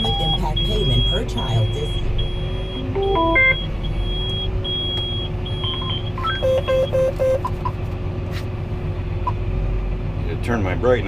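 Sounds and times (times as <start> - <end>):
held high tone: 0.0 - 3.7
electronic beeps: 0.0 - 7.6
tractor engine: 0.0 - 11.0.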